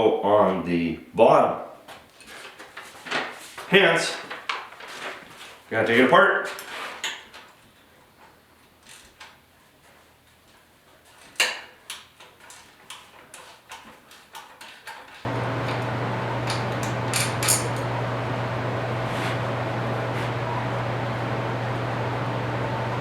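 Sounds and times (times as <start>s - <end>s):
mechanical hum with hiss: 15.3s - 23.0s.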